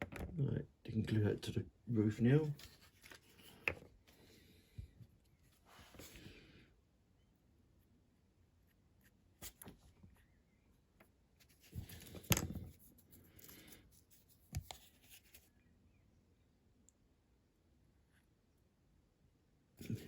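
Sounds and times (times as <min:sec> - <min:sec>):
card rustling: 0:02.4 - 0:04.0.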